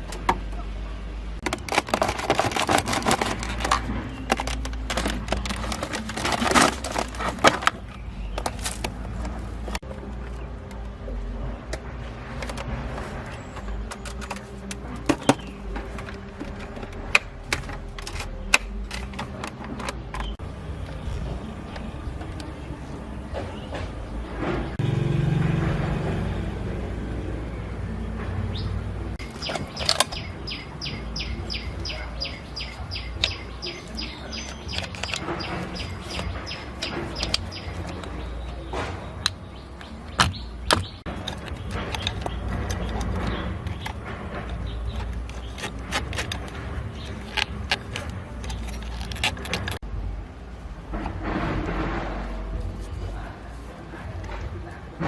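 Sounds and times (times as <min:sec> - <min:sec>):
bird chirping: 0:03.0 - 0:10.7, 0:27.2 - 0:49.8.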